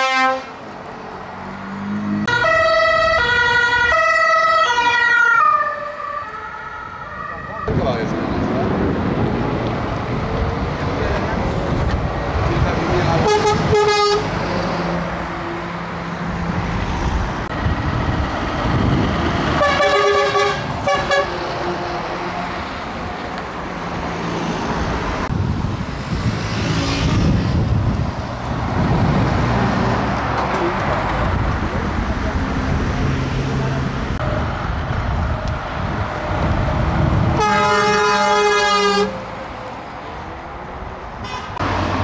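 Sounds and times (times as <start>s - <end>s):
truck horn toots: 0.0s - 0.6s, 13.2s - 14.3s, 19.6s - 22.4s, 37.4s - 39.2s
passing truck engines: 0.0s - 42.0s.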